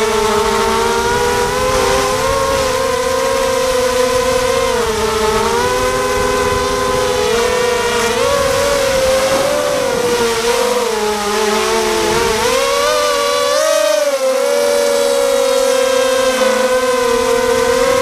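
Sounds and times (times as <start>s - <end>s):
wind rumbling on microphone: 0.0s - 13.6s
drone motors and propellers whining: 0.0s - 18.0s.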